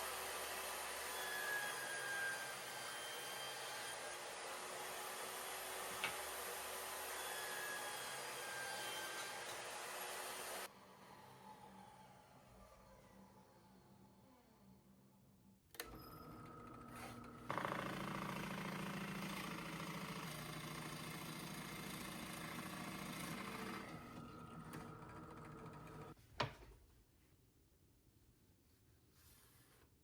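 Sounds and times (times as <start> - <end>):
electric power tool motor running: 15.8 - 26.2.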